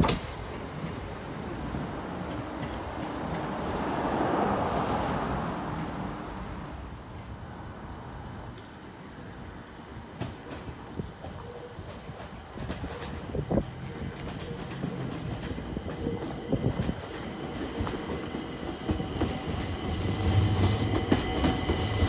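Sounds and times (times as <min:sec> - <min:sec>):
rail clicks: 0:00.0 - 0:04.6, 0:10.0 - 0:22.0
train wheels rushing on track: 0:00.0 - 0:07.4, 0:08.1 - 0:22.0
approaching train rumble: 0:00.0 - 0:22.0.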